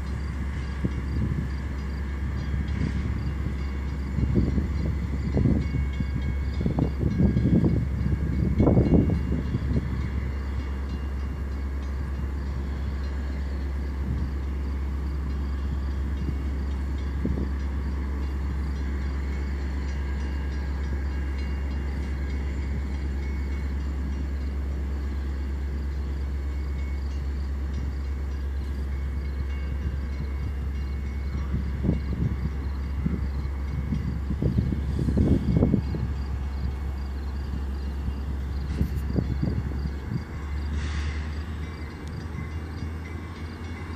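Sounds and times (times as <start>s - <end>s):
train rumbling: 0.0s - 43.9s.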